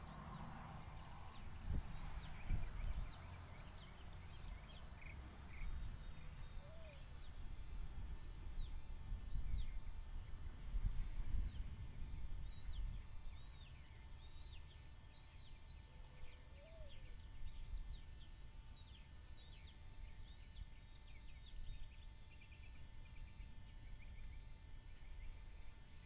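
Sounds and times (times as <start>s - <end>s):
wind rumbling on microphone: 0.0s - 4.8s, 5.5s - 13.7s
bird chirping: 0.0s - 10.0s, 11.3s - 25.8s.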